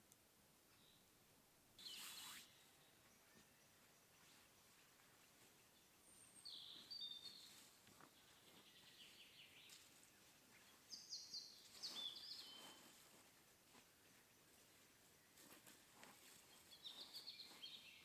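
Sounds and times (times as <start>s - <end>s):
songbird chirping: 0.0s - 18.0s
soft bird trill: 1.8s - 3.0s.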